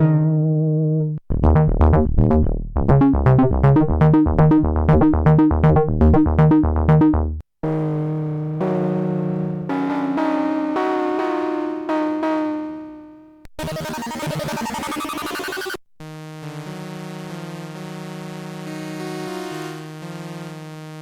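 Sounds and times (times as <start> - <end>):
short plucked synth notes: 0.0 - 14.6
synth bass line: 0.0 - 15.8
synthesizer held chord: 3.0 - 14.4.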